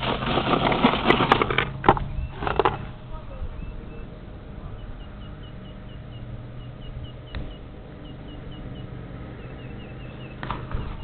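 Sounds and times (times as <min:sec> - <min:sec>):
steady low rumble: 0:01.5 - 0:11.0
small bird chirping: 0:02.0 - 0:11.0.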